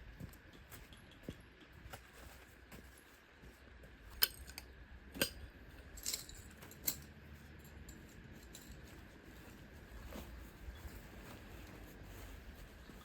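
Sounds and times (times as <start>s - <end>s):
faint background hum: 0.0s - 13.0s
small hard objects clinking: 5.2s - 9.0s.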